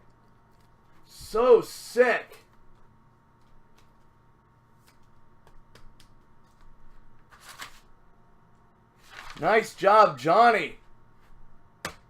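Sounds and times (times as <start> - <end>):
trading cards rustling: 6.4 - 7.9, 9.0 - 9.7.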